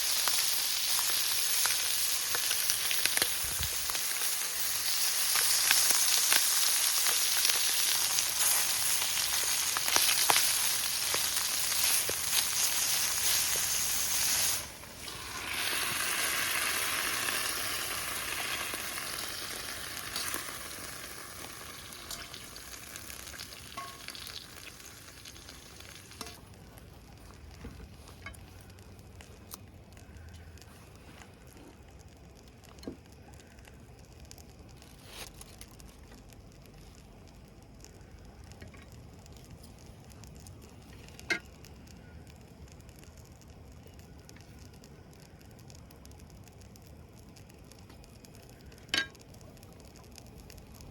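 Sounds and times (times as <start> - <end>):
food sizzling in a pan: 0.0 - 26.4.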